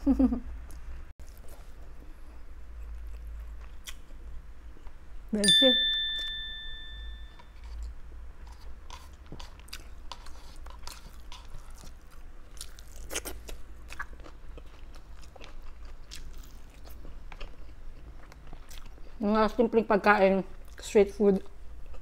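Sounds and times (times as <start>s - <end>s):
chewing and biting sausage: 8.5s - 19.2s.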